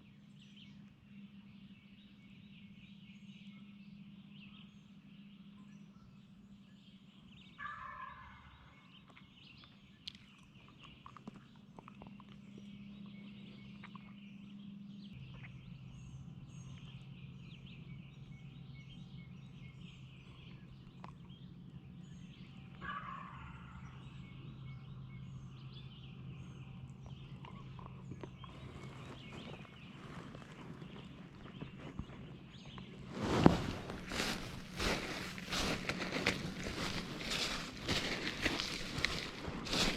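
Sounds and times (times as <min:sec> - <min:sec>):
songbirds chirping faintly: 0:00.0 - 0:39.9
wild turkey gobbling: 0:07.6 - 0:08.7, 0:22.8 - 0:24.0.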